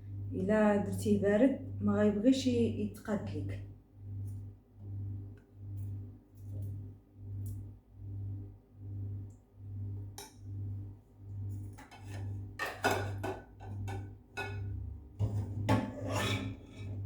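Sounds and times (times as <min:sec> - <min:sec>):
spoon scraping and knocking a pot: 0:11.7 - 0:17.0.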